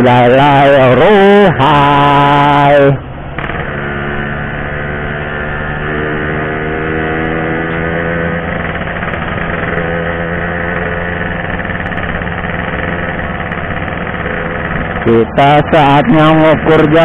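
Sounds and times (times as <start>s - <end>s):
two-stroke engine idling: 8.4s - 17.0s.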